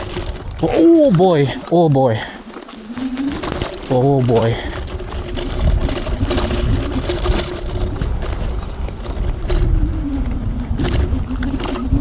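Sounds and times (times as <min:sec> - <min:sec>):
rattles and knocks from rough ground: 0:00.0 - 0:12.0
electric scooter motor whining: 0:02.4 - 0:12.0.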